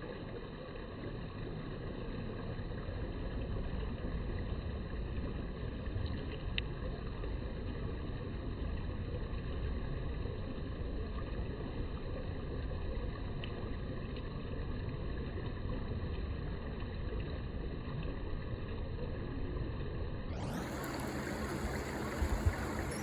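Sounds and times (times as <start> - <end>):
faint short chirp: 20.4 - 23.0
river water rushing: 20.4 - 23.0.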